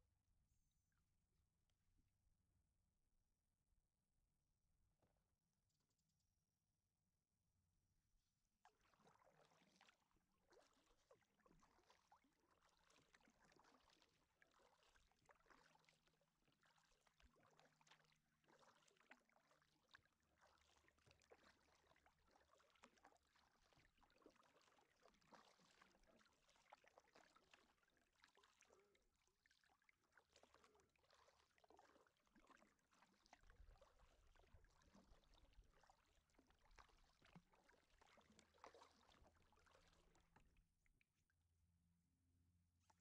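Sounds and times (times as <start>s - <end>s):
paddle splashing in water: 8.7s - 40.6s.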